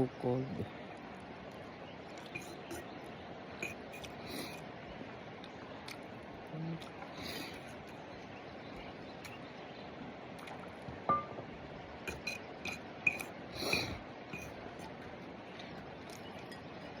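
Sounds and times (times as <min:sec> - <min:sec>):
utensils clinking on a dish: 0:02.2 - 0:02.8, 0:03.6 - 0:04.6, 0:12.1 - 0:15.0
utensils scraping: 0:02.3 - 0:02.8, 0:03.6 - 0:04.6, 0:12.1 - 0:15.0.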